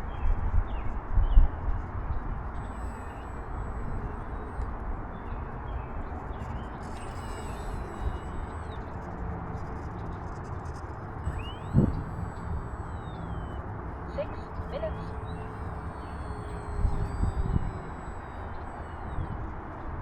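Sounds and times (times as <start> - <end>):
faint bird chirps: 2.6 - 20.0.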